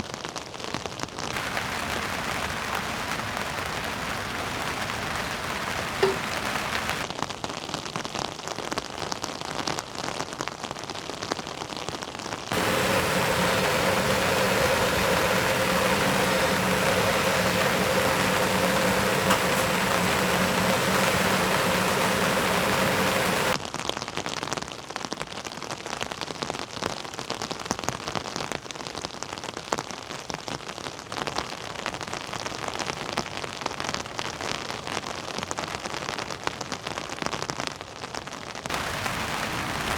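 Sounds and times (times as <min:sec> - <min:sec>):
faint steady hum: 0:01.4 - 0:07.0, 0:12.6 - 0:23.6
heavy rain pattering: 0:01.4 - 0:07.1, 0:12.5 - 0:23.6, 0:38.7 - 0:39.9.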